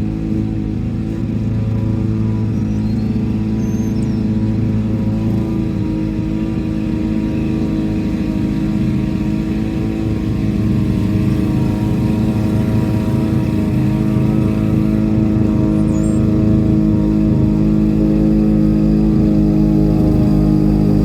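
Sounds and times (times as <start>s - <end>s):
lawn mower engine running: 0.0s - 21.0s.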